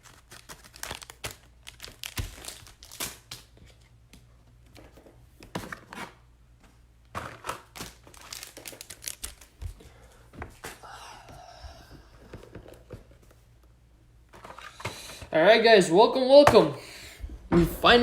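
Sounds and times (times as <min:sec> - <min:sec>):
plastic packaging crinkling: 0:00.0 - 0:03.8, 0:07.2 - 0:09.6.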